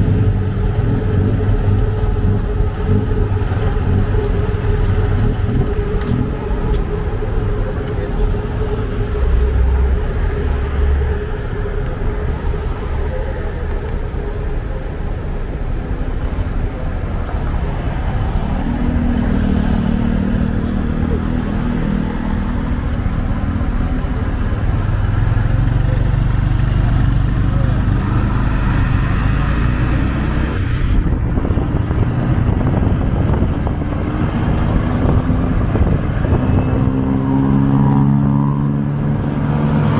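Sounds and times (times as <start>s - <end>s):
motorcycle engine running: 0.0s - 17.3s
deeper engine note: 0.0s - 39.9s
road and traffic noise: 0.0s - 39.9s.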